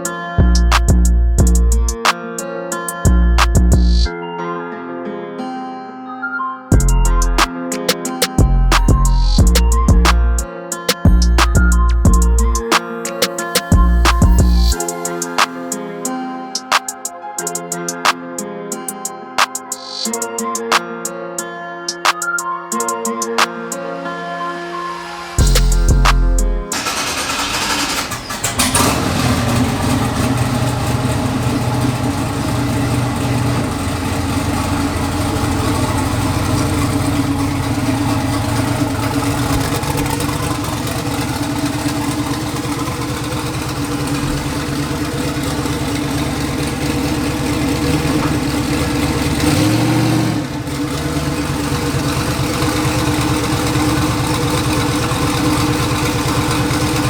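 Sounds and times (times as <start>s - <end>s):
truck engine starting and idling: 13.7s - 14.8s, 25.4s - 57.0s
engine revving: 25.4s - 57.0s.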